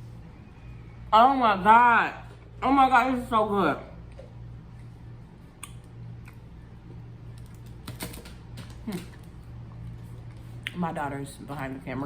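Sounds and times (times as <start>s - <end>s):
steady low hum: 0.0s - 12.0s
chewing clicks: 5.6s - 6.4s.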